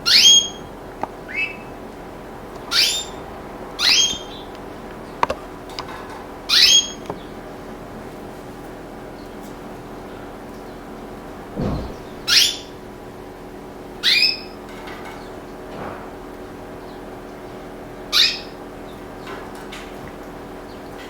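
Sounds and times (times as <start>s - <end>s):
steady low hum: 10.9s - 13.0s
dull thump: 11.4s - 12.6s
canary calls sweeping down: 11.5s - 12.7s.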